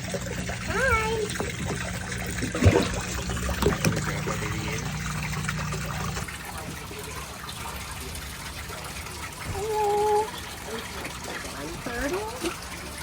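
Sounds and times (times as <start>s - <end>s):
low hum: 0.0s - 6.2s
water trickling into a tank: 0.0s - 13.0s.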